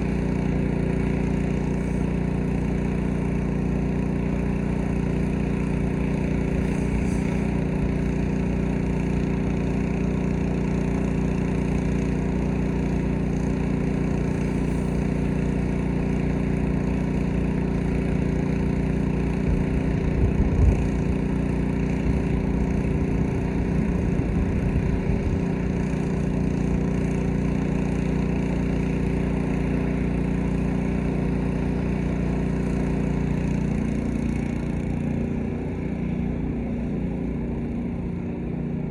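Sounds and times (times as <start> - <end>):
pressure washer engine running: 0.0 - 38.9.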